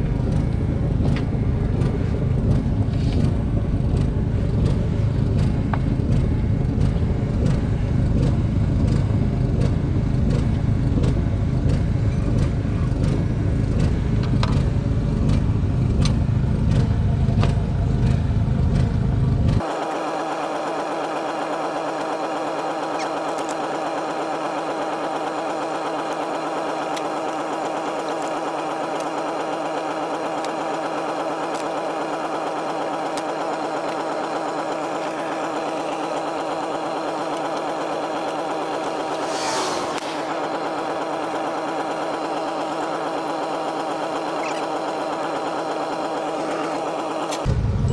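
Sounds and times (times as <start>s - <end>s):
motor humming steadily: 0.0s - 47.9s
short rushing noise: 39.0s - 40.5s.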